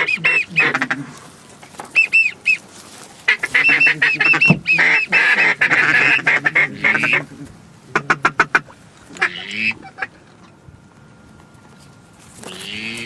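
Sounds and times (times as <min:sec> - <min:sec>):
goose honking: 0:00.0 - 0:01.2, 0:03.2 - 0:10.2, 0:12.4 - 0:13.0.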